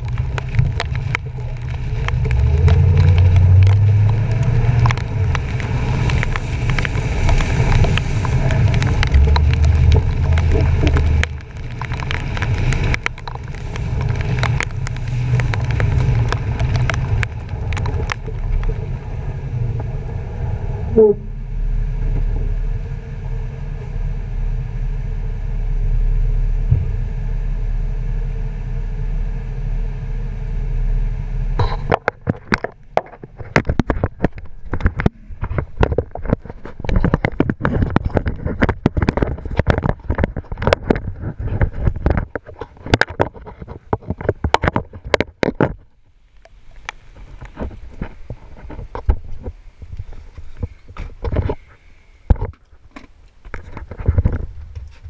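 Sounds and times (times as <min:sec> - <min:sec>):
sharp clicks and knocks: 0:00.0 - 0:18.8, 0:31.6 - 0:55.0
truck engine and road rumble: 0:00.0 - 0:55.0.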